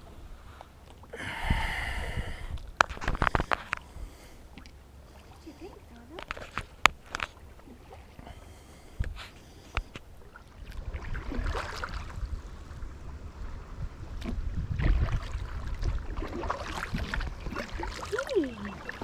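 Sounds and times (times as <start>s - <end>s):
water sloshing: 2.6s - 13.1s, 14.1s - 19.0s
paddle splashes: 4.5s - 13.1s, 14.1s - 19.0s.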